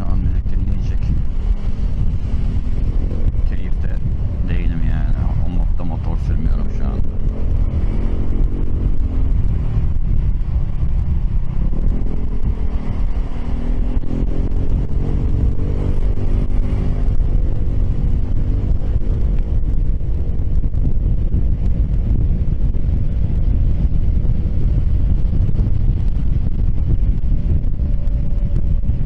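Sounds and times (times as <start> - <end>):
wind rumble on microphone: 0.0 - 29.0.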